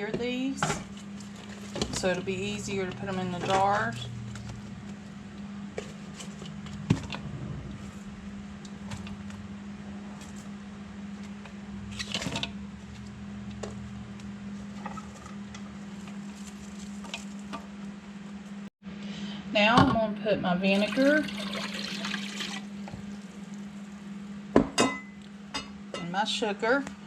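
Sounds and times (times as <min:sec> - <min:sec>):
handling noise: 0:00.0 - 0:18.7
steady low hum: 0:00.0 - 0:27.0.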